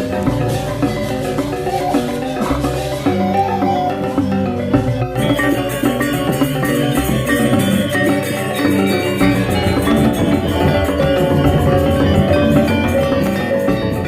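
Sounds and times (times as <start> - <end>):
drums: 0.0 - 14.0
metallophone notes: 0.0 - 14.0
low gong tones: 5.3 - 14.0.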